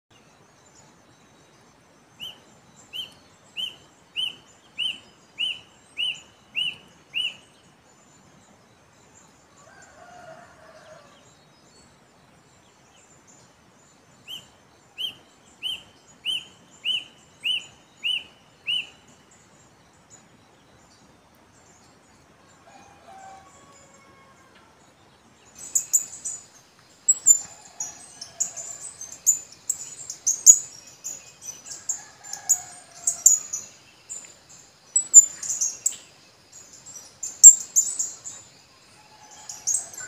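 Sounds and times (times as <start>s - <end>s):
bird singing whistled notes: 14.3s - 19.1s.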